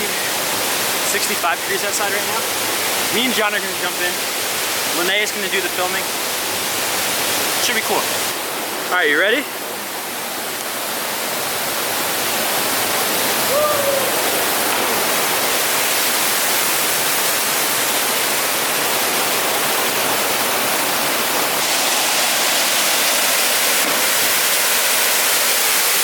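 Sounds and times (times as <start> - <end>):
loud waterfall rushing: 0.0 - 26.0
short voice-like call: 13.5 - 14.3.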